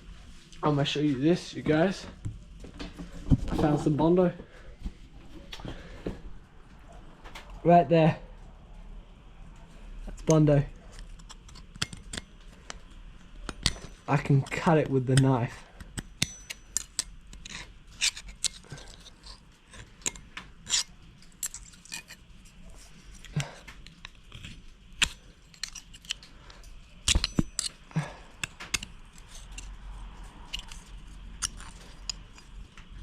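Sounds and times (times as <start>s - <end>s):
knife scraping body filler: 13.4s - 32.6s.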